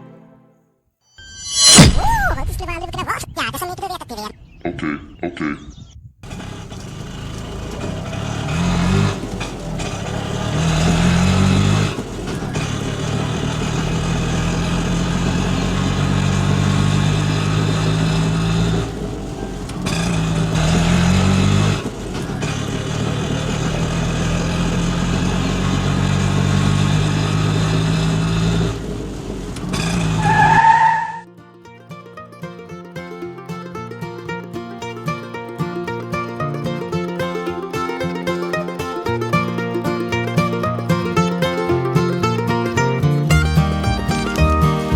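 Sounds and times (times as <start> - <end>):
engine revving: 6.2 - 31.3.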